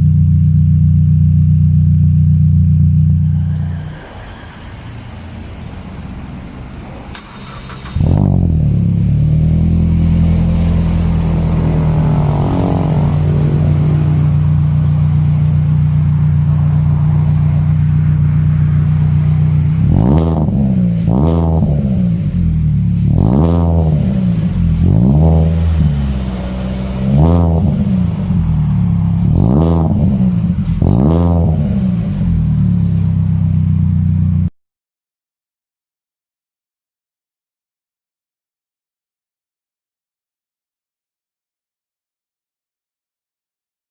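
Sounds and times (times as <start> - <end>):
car engine idling and revving: 0.0 - 34.5.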